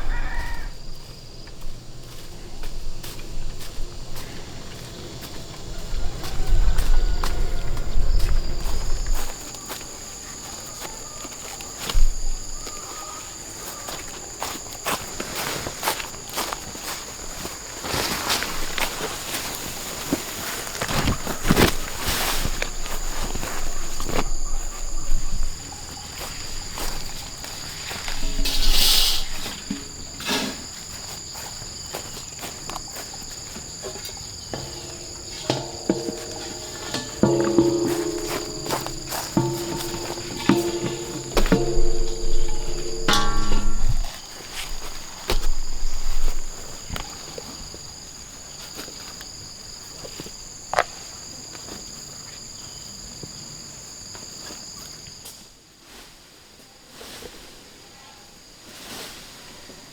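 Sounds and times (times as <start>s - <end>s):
insects buzzing: 0.0s - 51.2s
insects singing: 22.8s - 44.2s
low thumps: 34.5s - 44.2s
sharp knock: 34.6s - 44.1s.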